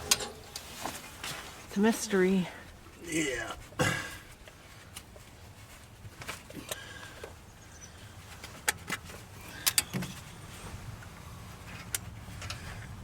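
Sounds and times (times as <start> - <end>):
sharp clicks and light knocks: 8.4 - 10.2, 11.7 - 12.9.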